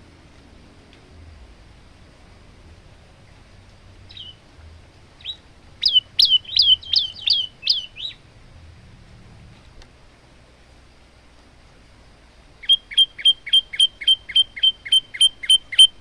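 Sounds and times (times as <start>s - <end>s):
bird singing sharp chips: 4.1s - 4.4s, 5.2s - 8.2s, 12.6s - 16.0s.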